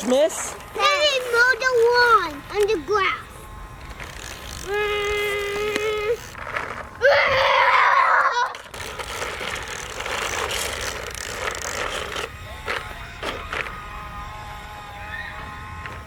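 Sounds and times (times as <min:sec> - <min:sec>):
toy lawn mower rattling: 0:00.0 - 0:13.8
loud shrill sound: 0:14.8 - 0:15.8.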